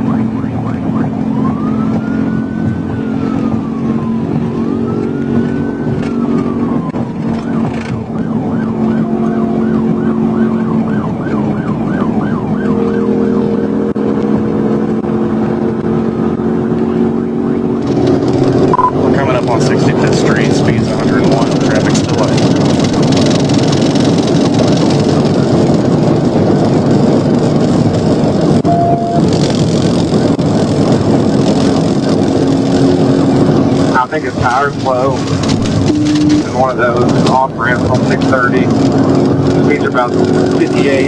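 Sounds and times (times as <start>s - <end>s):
police siren wailing and yelping: 0.0s - 14.0s, 28.6s - 29.4s, 34.7s - 37.4s
car engine drone: 0.0s - 41.0s.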